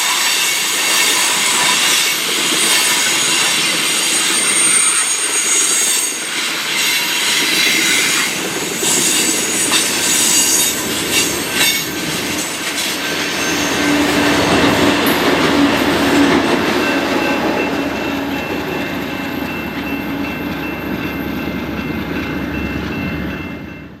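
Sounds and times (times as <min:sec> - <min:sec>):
train wheels squealing: 0:00.0 - 0:21.5
train cars rumbling: 0:00.0 - 0:24.0.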